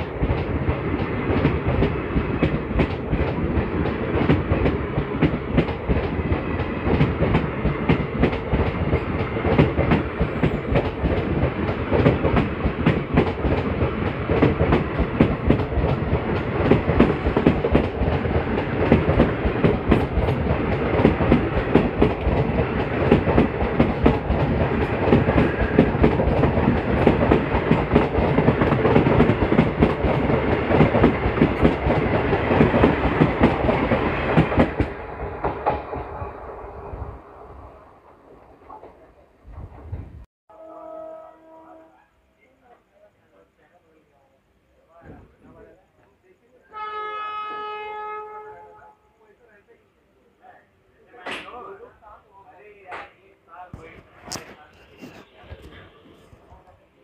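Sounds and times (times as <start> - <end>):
train wheels clattering over rail joints: 0.0 - 36.2.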